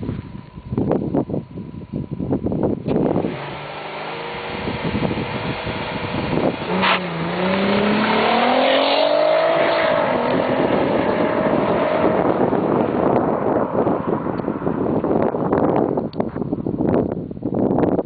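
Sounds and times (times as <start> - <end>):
car engine accelerating: 2.9 - 16.0.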